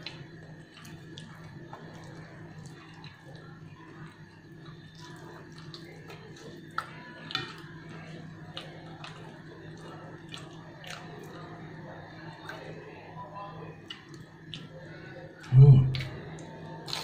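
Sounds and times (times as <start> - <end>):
wet chewing and lip-smacking: 0.0 - 11.6, 13.8 - 17.0
steady low hum: 14.9 - 16.5.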